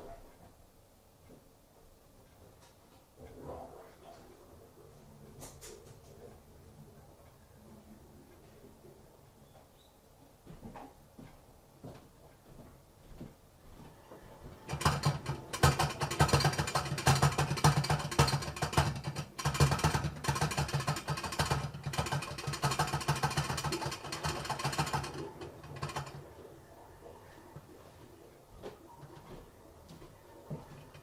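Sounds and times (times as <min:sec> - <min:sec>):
drain plumbing rattling buzz: 0:14.6 - 0:26.2.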